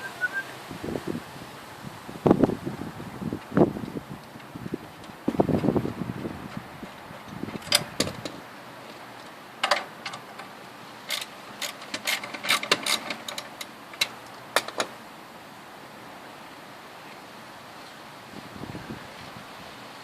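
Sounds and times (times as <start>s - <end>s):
hand tools clicking on metal: 6.9s - 14.9s.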